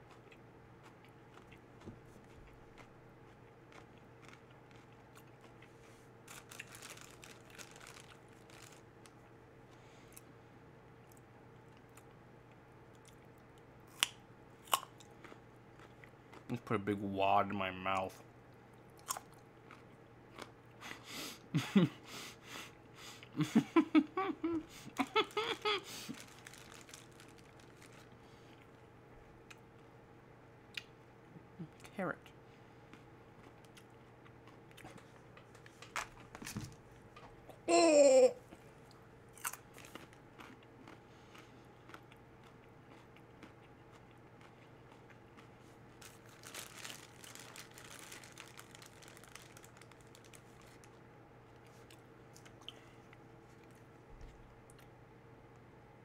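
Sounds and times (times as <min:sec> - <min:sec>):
person chewing carrots: 0:00.0 - 0:10.4, 0:11.0 - 0:16.7, 0:18.5 - 0:21.0, 0:24.7 - 0:28.8, 0:32.8 - 0:37.6, 0:38.4 - 0:51.0.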